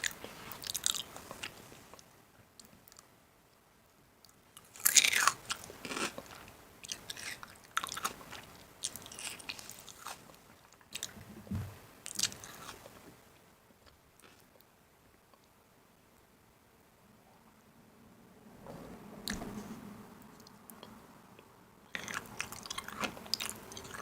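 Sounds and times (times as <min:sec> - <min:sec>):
crisp food crunching: 0:04.6 - 0:11.2, 0:12.1 - 0:13.0, 0:22.0 - 0:24.0
short dull thud: 0:11.3 - 0:11.8.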